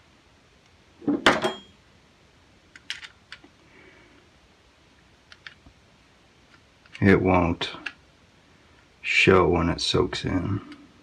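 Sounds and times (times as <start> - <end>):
short metallic ring: 1.4 - 1.8.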